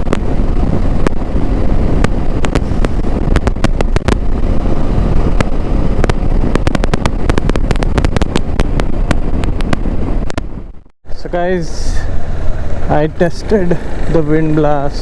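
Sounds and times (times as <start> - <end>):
sharp microphone crackles: 0.0 - 10.9
wind and road noise rumble: 0.0 - 15.0.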